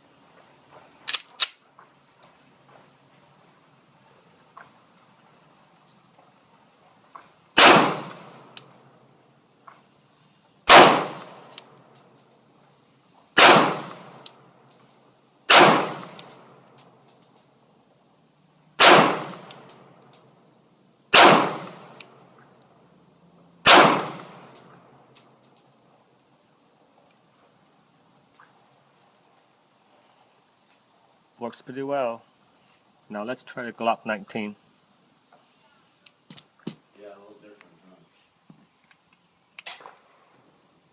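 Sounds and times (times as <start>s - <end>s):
pistol shots with ringing echo: 7.6s - 8.6s, 10.7s - 11.6s, 13.4s - 14.2s, 15.5s - 16.4s, 18.8s - 19.7s, 21.1s - 22.0s, 23.6s - 24.6s.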